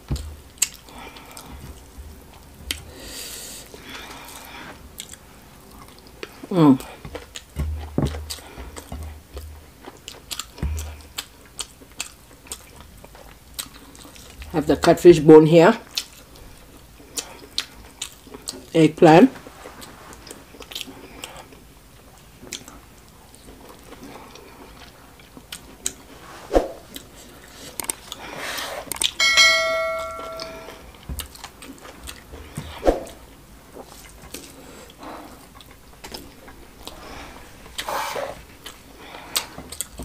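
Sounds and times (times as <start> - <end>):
chewing: 0.1 - 3.0, 3.6 - 14.5, 15.8 - 18.7, 19.6 - 26.1, 26.9 - 29.2, 31.2 - 32.6, 33.7 - 40.0
electronic bell chime: 29.2 - 30.8.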